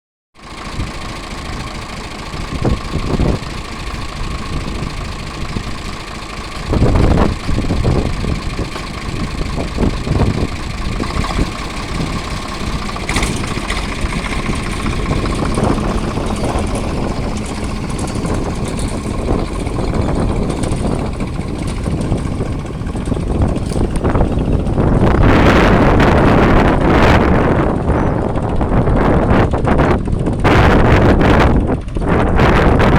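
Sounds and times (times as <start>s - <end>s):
engine knocks: 0.4s - 32.9s
tractor engine running: 0.4s - 32.9s.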